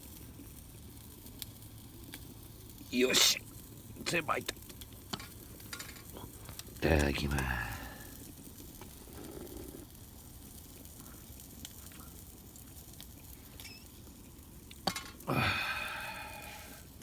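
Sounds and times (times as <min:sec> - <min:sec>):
sausages sizzling in a pan: 0:00.0 - 0:17.0
utensils clinking: 0:05.2 - 0:06.2.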